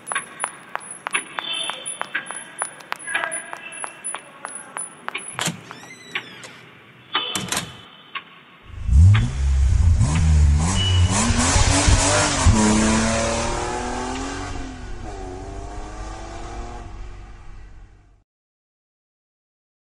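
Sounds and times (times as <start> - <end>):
vehicle engine starting and revving: 8.7 - 17.5.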